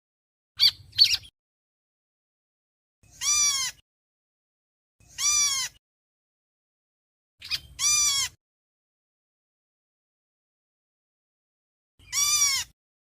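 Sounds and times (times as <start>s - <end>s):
bird harsh buzzy calls: 3.0s - 3.8s, 5.0s - 5.8s, 7.4s - 8.4s, 12.0s - 12.8s.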